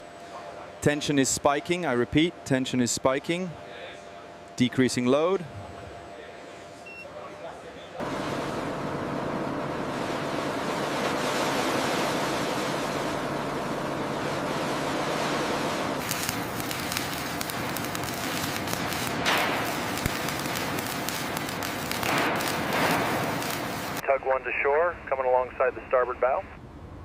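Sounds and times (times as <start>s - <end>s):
low hum: 8.0s - 24.1s
crackling: 16.0s - 24.0s
steady rushing noise: 16.0s - 24.0s.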